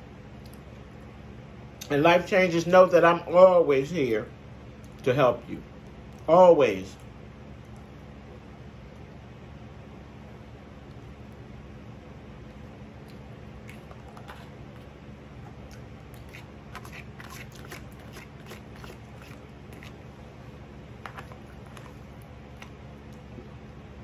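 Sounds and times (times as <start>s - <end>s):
steady low hum: 0.0s - 24.0s
person chewing with clicks: 0.4s - 1.1s, 12.4s - 20.0s, 21.0s - 23.8s.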